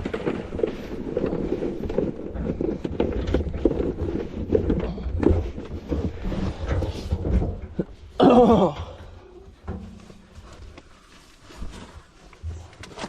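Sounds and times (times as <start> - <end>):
vehicle driving over rough ground: 0.0 - 8.2
knocks and rattles: 0.0 - 10.8.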